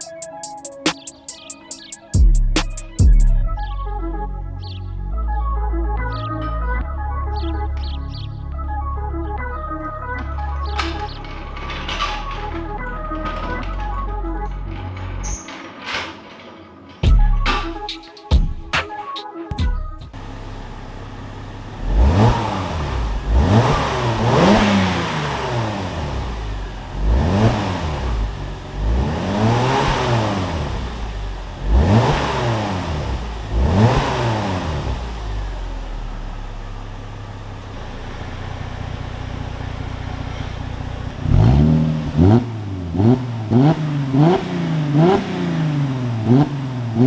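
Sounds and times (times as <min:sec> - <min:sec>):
car engine revving and idling: 0:06.8 - 0:14.9, 0:20.2 - 0:47.0.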